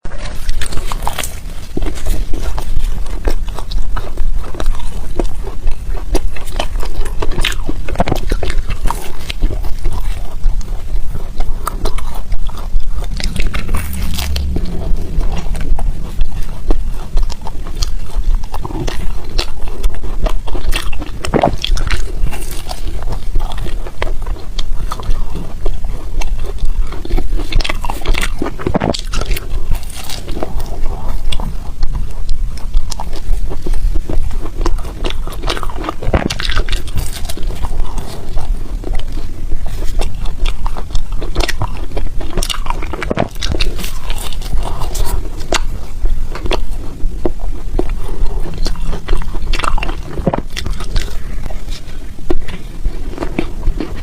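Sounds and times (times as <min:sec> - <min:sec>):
ice crunching in mouth: 0:00.1 - 0:54.0.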